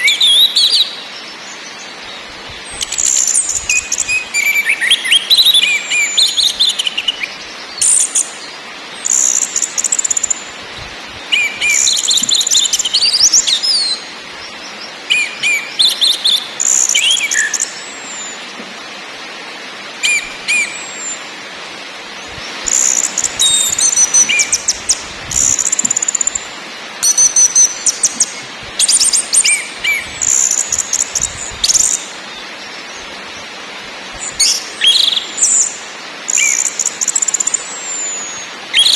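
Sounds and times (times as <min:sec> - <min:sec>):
steady hiss: 0:00.0 - 0:38.9
thrush singing rapid trills: 0:22.4 - 0:32.1.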